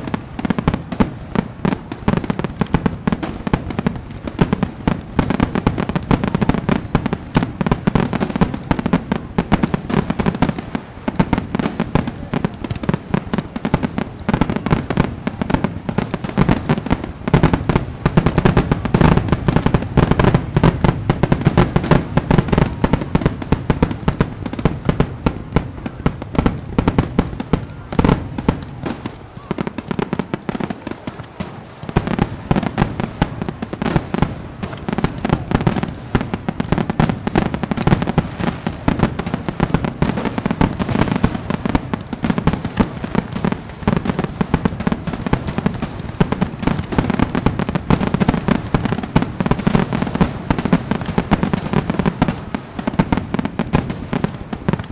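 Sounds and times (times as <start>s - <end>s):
fireworks bangs and crackling: 0.0s - 54.9s.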